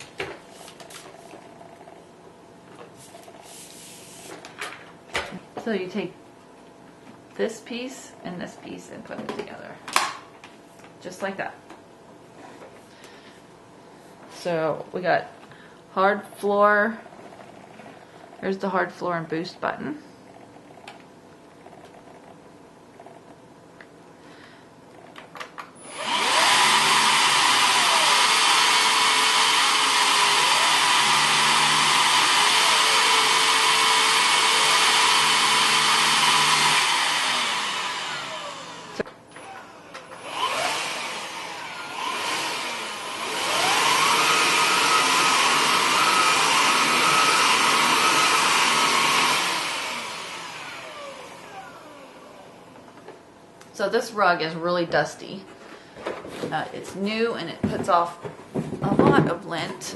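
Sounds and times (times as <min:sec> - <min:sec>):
stick vacuum whining: 0:25.8 - 0:53.2.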